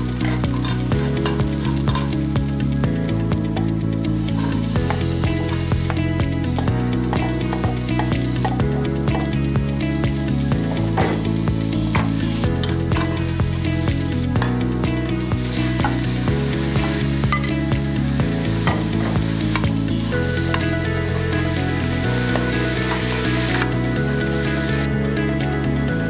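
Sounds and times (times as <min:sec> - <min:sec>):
food sizzling in a frying pan: 0:00.0 - 0:24.9
background music: 0:00.0 - 0:26.0
utensil knocking on pan: 0:06.6 - 0:09.3, 0:10.9 - 0:11.2.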